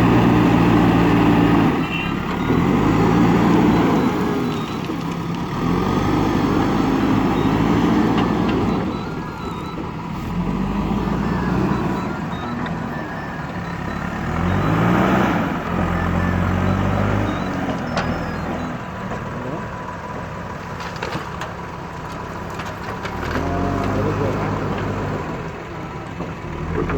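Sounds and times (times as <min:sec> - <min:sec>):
diesel engine revving: 0:00.0 - 0:26.9.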